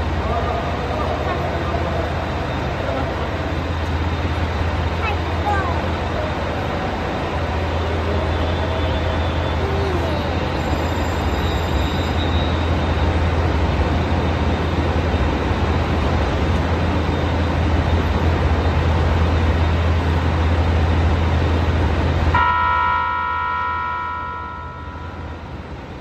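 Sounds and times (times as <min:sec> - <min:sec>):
train rumbling drone: 0:00.0 - 0:26.0
steady high tones: 0:22.4 - 0:26.0.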